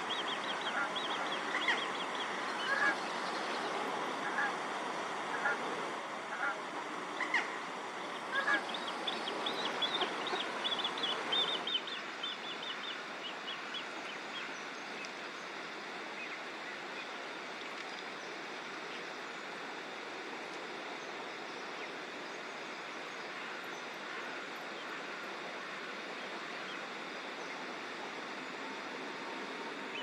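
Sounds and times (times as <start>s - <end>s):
songbird chirping: 0.0s - 5.0s, 7.2s - 19.1s
outdoor background rush: 0.0s - 30.0s.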